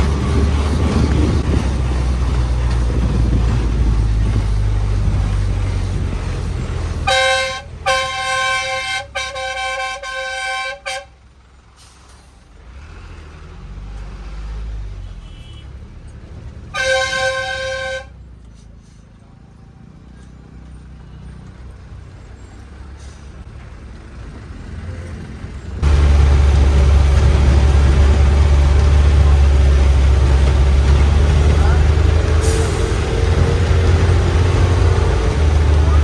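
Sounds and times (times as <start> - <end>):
traffic rumble: 0.0 - 36.0
vehicle horn blasts: 7.1 - 11.2, 15.0 - 15.7, 16.7 - 18.2.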